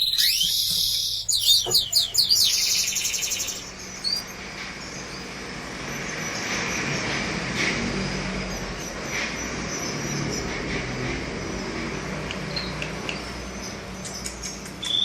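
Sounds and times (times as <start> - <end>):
faint high bird calls: 0.0 - 5.3
canary chirp: 0.0 - 5.4
steady background noise: 0.0 - 15.0.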